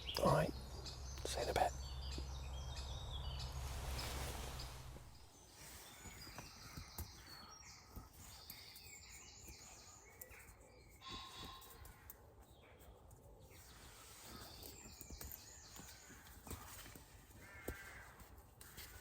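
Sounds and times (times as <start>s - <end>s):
birds chirping and calling: 0.0s - 19.0s
steady rushing noise with hum: 0.6s - 6.5s.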